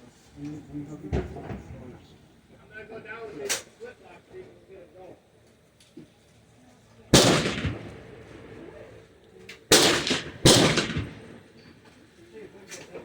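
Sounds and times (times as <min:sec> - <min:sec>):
gunshots with echo: 0:07.2 - 0:08.7, 0:09.7 - 0:11.5.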